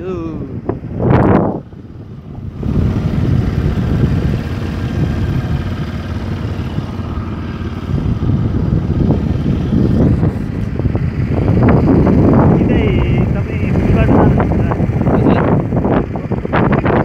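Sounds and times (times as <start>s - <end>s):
motorcycle engine rumble: 0.0s - 17.0s
wind buffeting microphone: 0.0s - 17.0s.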